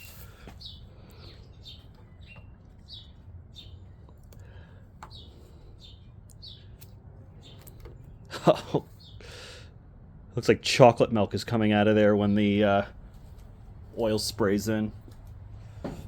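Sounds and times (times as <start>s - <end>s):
bird chirping: 0.0s - 9.2s.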